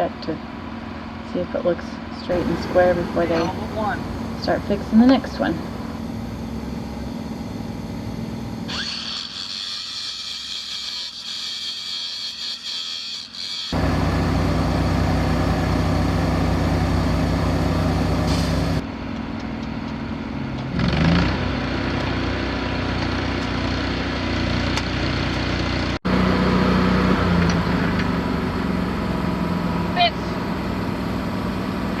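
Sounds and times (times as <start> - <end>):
diesel engine idling: 0.0 - 8.8, 13.8 - 20.6, 21.6 - 32.0
engine revving: 1.4 - 9.0, 13.7 - 18.8, 20.6 - 32.0.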